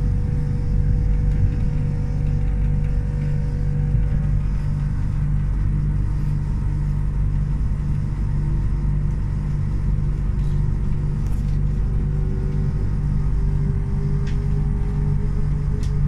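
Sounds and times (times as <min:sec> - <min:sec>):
faint whine: 0:00.0 - 0:16.0
train rumble and hum: 0:00.0 - 0:16.0.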